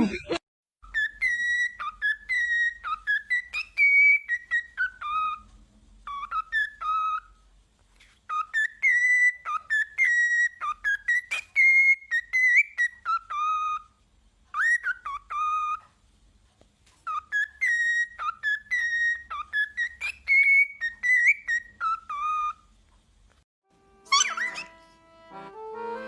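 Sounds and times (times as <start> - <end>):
parrot whistling a tune: 0.8 - 7.4, 8.3 - 15.9, 17.0 - 22.7, 24.1 - 24.9.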